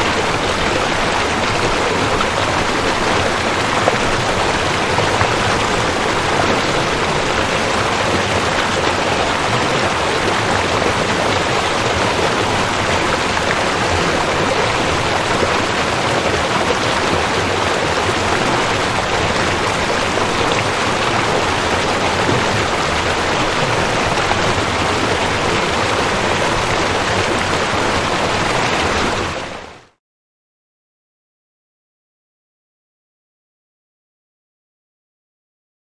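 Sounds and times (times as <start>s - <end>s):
creek water rushing: 0.0s - 29.8s.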